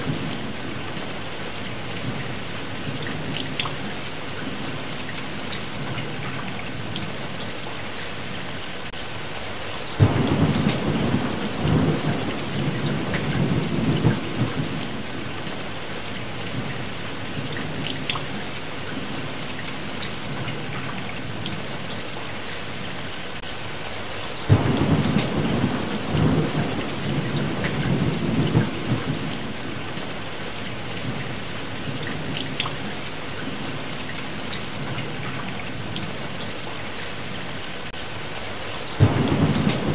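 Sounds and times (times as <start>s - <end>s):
steady rain: 0.0s - 39.9s
thunder rumbling: 10.0s - 15.4s, 24.5s - 30.0s, 39.0s - 39.9s.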